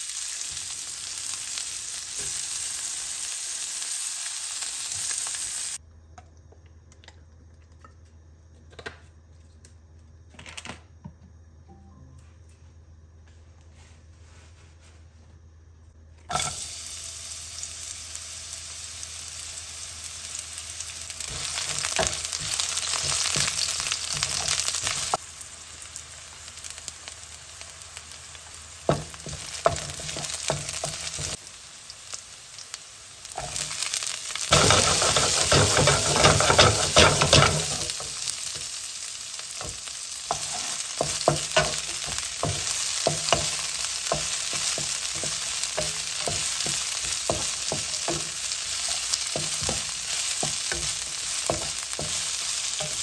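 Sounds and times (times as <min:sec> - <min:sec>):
vegetables sizzling in oil: 0:00.0 - 0:05.8, 0:16.3 - 0:53.0
wooden spatula clicking and scraping: 0:34.5 - 0:37.7.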